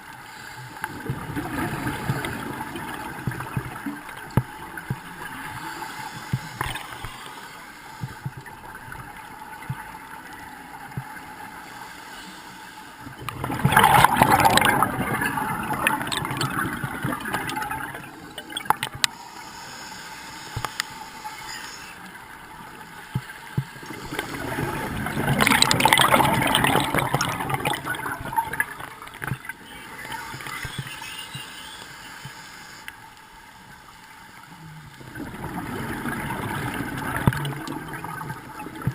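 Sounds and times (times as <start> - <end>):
exhaled bubbles rushing: 1.0 - 5.0, 13.2 - 19.0, 23.9 - 29.4, 35.0 - 38.9
faint clicks: 2.0 - 12.3, 15.8 - 24.3, 26.9 - 35.0.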